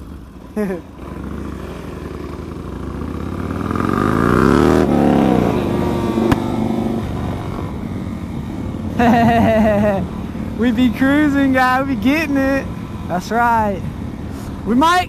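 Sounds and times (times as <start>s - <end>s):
motorcycle engine accelerating: 0.0s - 14.3s.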